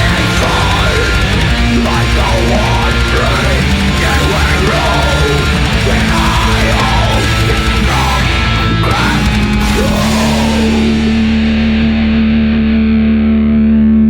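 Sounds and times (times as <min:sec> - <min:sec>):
heavy metal band playing: 0:00.0 - 0:14.0.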